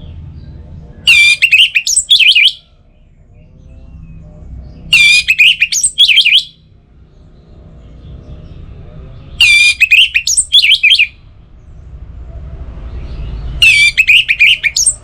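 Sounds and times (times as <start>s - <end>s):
thrush singing: 1.1s - 2.6s, 4.9s - 6.5s, 9.4s - 11.2s, 13.6s - 15.0s.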